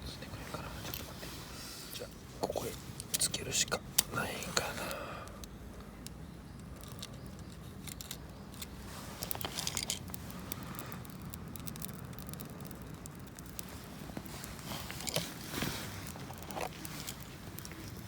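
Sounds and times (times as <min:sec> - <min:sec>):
small clicks: 0:04.9 - 0:18.0
light rustling: 0:06.8 - 0:18.0.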